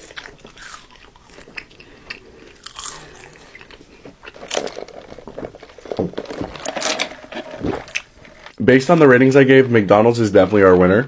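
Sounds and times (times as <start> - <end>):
crunchy food chewing: 0.0 - 8.6.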